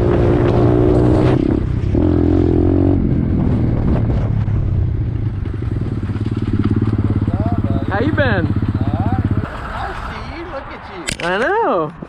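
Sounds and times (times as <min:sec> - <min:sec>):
pit bike engine idling: 0:04.9 - 0:10.5.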